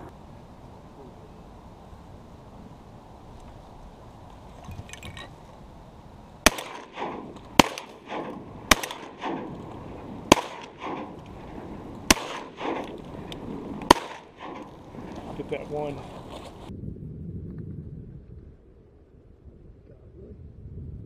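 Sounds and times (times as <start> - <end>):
gunshot echo: 6.4 - 14.8
shotgun shots: 6.4 - 15.0.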